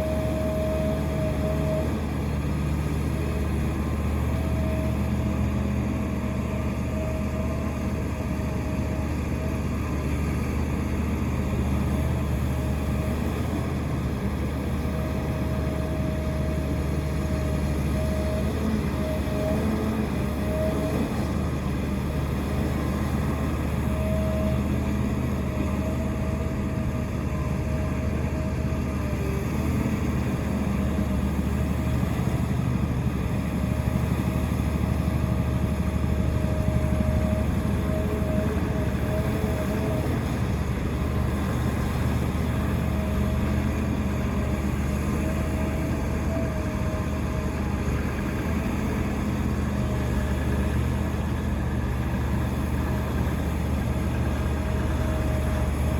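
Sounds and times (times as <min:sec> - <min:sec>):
excavator diesel engine: 0:00.0 - 0:55.9.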